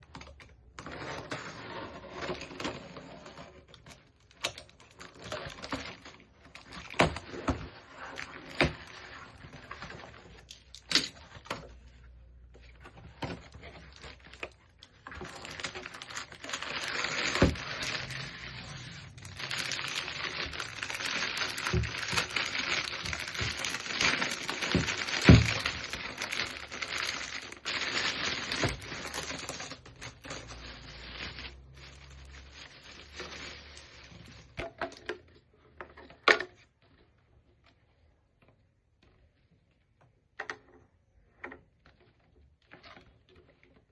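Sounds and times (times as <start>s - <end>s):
plastic packaging crinkling: 3.3s - 12.1s, 12.8s - 34.6s.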